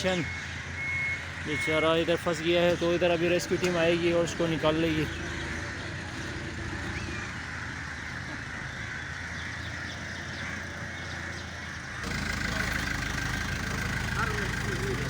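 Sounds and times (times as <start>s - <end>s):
outdoor background noise: 0.0s - 15.0s
vehicle engine idling: 8.7s - 15.0s.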